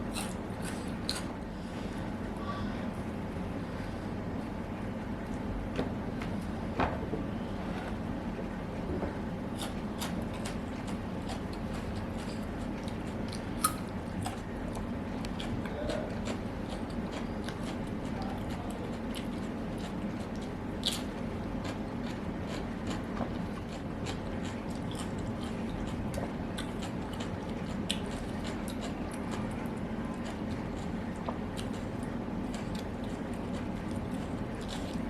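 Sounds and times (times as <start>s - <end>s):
low background hum: 0.0s - 35.0s
chewing and biting food: 9.5s - 35.0s.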